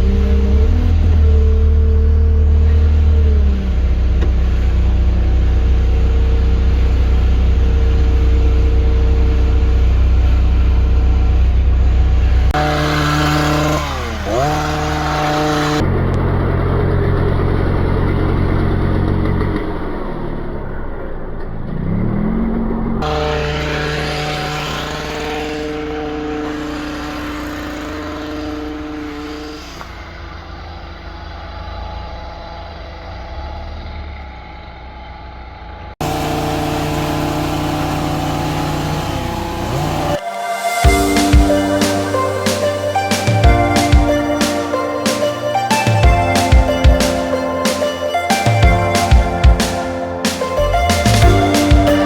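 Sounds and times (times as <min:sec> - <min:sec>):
digger engine humming: 0:00.0 - 0:20.6, 0:36.0 - 0:52.0
petrol hedge cutters: 0:12.6 - 0:15.8, 0:23.0 - 0:29.9.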